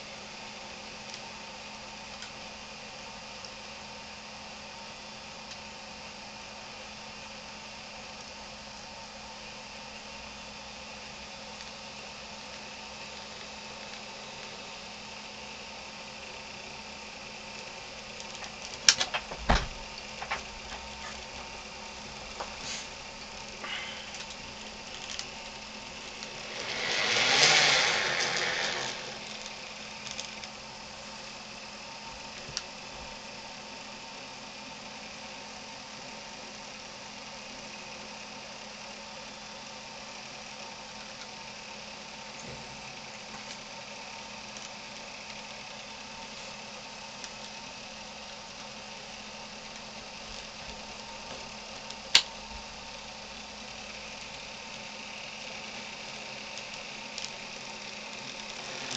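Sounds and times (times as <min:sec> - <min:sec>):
model locomotive humming: 0:00.0 - 0:58.9
loud hiss: 0:22.4 - 0:24.6, 0:25.7 - 0:29.4.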